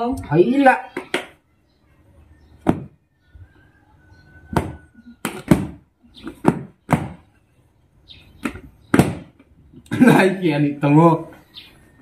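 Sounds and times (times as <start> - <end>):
sharp knocks: 8.4 - 9.4.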